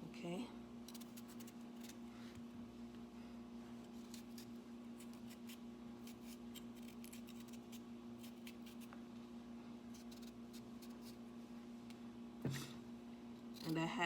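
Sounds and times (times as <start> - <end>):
steady low hum: 0.0 - 14.0
blade scraping potato skin: 0.9 - 2.0, 3.8 - 8.9, 9.9 - 11.2, 13.4 - 14.0.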